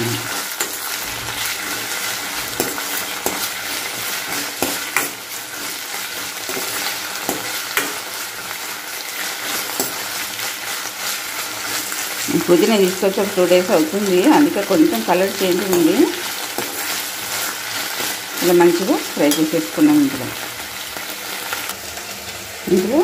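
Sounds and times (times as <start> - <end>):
leaves sizzling in hot oil: 0.0 - 23.0
spoon scraping and clinking pan: 0.3 - 5.7, 19.2 - 19.9.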